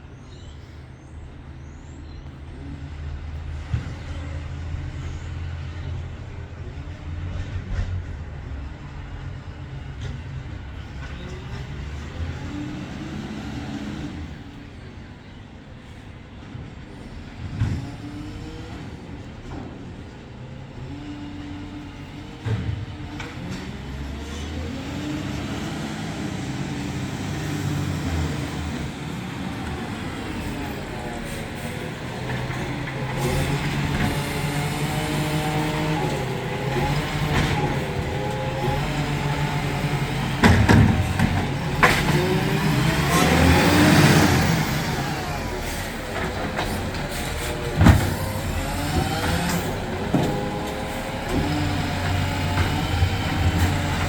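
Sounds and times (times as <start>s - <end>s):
truck engine revving: 20.6s - 54.0s.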